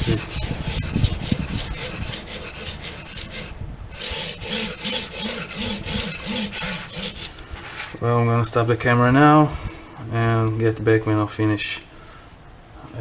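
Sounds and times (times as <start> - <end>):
blade scraping on sharpening plate: 0.0 - 8.0.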